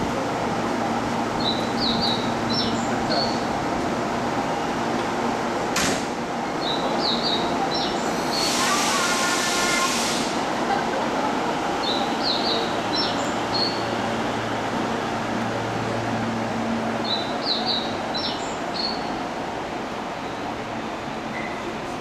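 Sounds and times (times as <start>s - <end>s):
subway train running: 0.0s - 22.0s
sharp clunk: 5.7s - 6.2s
hiss of air: 8.0s - 10.5s.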